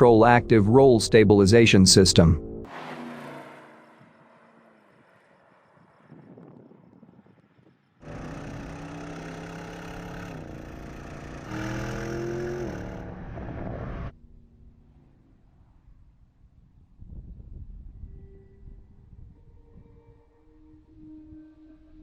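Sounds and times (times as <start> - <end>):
car engine running under load: 2.6 - 16.0.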